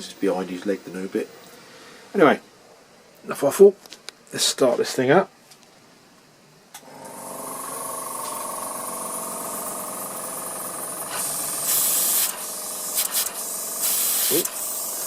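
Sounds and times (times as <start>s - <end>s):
air engine hissing: 7.3s - 15.0s
spurts of hissing air: 7.4s - 15.0s.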